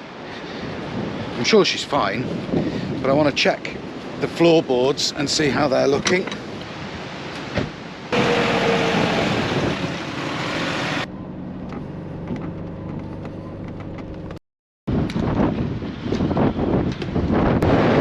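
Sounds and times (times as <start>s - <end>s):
road noise: 0.0s - 18.0s
car engine hum: 8.1s - 14.4s.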